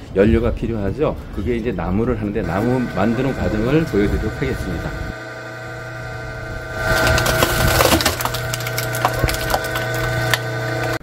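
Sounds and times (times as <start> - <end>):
motor hum: 1.9 - 11.0
wood cracking and splintering: 6.7 - 11.0.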